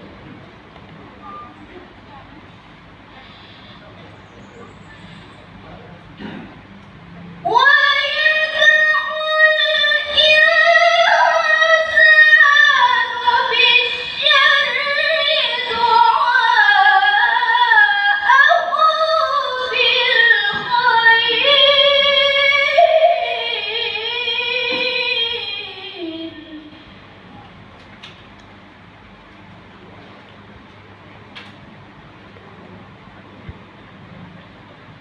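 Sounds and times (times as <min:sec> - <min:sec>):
girl reciting melodically: 0:07.4 - 0:27.0.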